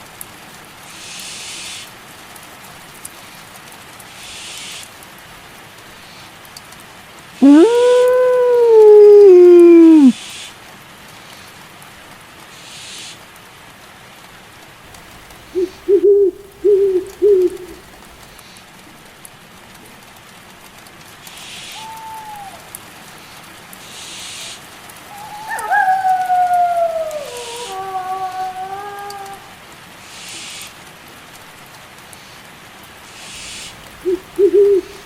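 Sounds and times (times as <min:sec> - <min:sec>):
steady rain: 0:00.0 - 0:35.0
long falling howl: 0:07.4 - 0:10.1, 0:15.2 - 0:18.2, 0:21.8 - 0:22.8, 0:25.0 - 0:29.6, 0:33.8 - 0:35.0
owl hooting: 0:07.4 - 0:10.2, 0:14.9 - 0:18.3, 0:21.4 - 0:22.7, 0:23.9 - 0:29.5, 0:33.1 - 0:35.0
short falling call: 0:07.4 - 0:10.2.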